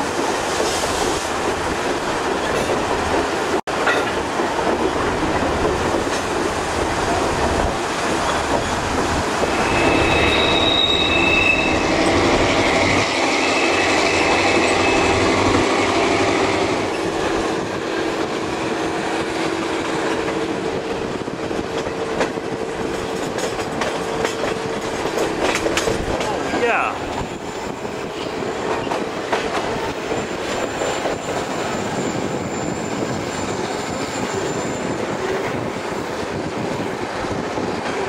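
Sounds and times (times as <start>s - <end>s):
train rumble and wheel clatter: 0.0s - 38.0s
train wheels squealing: 8.2s - 17.1s, 29.9s - 35.7s.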